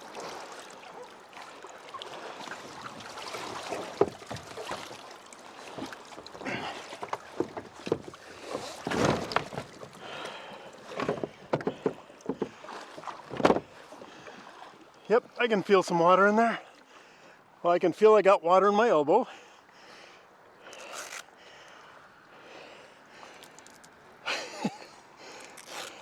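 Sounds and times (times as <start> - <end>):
water splashing and sloshing: 0.0 - 26.0
knocks and rustles: 8.8 - 9.9, 10.9 - 12.6, 13.3 - 13.7.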